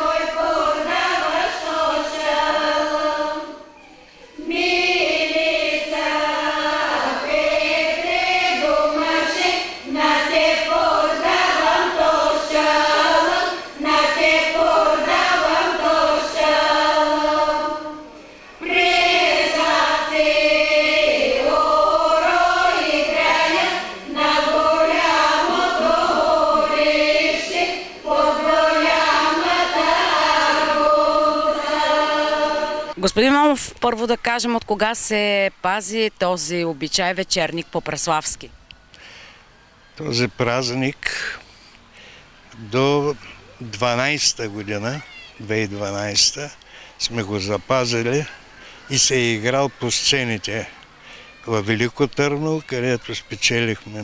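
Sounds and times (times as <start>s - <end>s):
group singing a cappella: 0.0s - 33.0s.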